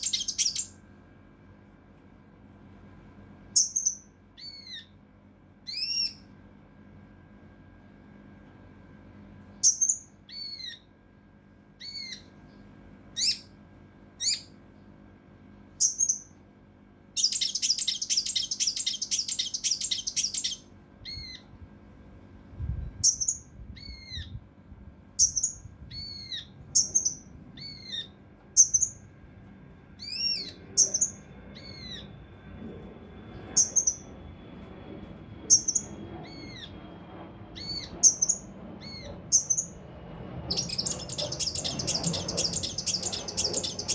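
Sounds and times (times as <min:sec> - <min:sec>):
bird singing high notes: 0:00.0 - 0:00.7, 0:17.2 - 0:20.6, 0:40.5 - 0:43.9
bird rapid rattle: 0:17.2 - 0:20.6, 0:40.5 - 0:43.9.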